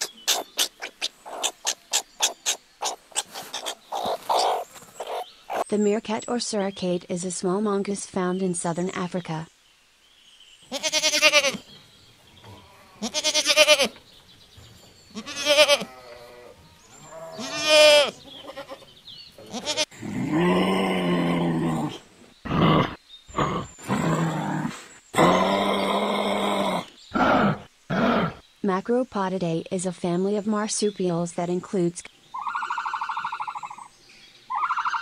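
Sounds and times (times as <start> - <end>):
sheep bleating: 10.7 - 11.6, 12.5 - 14.0, 15.1 - 19.9
sheep lower calls: 10.7 - 11.7, 12.4 - 14.0, 15.1 - 18.8, 19.4 - 22.0.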